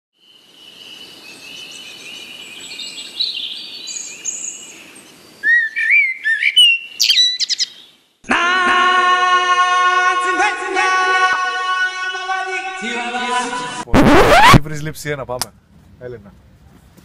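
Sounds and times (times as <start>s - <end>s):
birds chirping: 0.7s - 8.1s
whistled bird calls: 5.4s - 7.9s.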